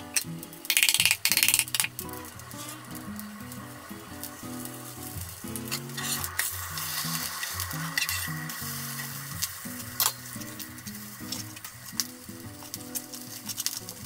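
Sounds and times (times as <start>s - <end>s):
oil sizzling in frying pans: 0.0s - 14.0s
metal spatula clicking on pan: 0.1s - 2.1s, 5.6s - 10.4s.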